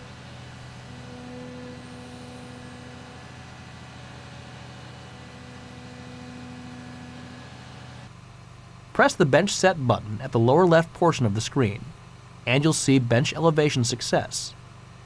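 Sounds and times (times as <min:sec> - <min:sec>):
excavator diesel engine running: 0:00.0 - 0:08.1
higher humming tone: 0:00.0 - 0:08.1.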